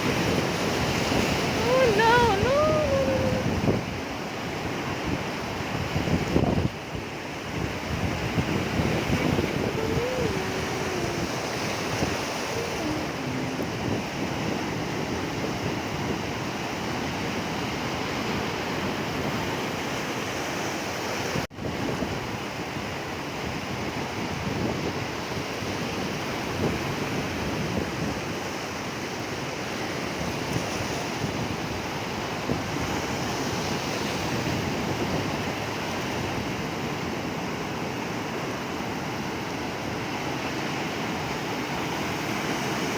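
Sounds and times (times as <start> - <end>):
wind buffeting microphone: 0.0 - 19.5
sea waves washing onto shore: 0.0 - 42.9.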